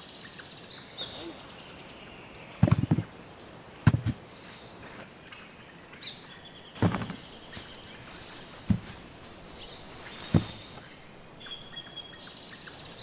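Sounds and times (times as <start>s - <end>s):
small birds trilling: 0.0s - 13.0s
steady outdoor hiss: 0.0s - 13.0s
dull thumps: 2.6s - 3.1s, 3.8s - 4.2s, 6.8s - 10.8s.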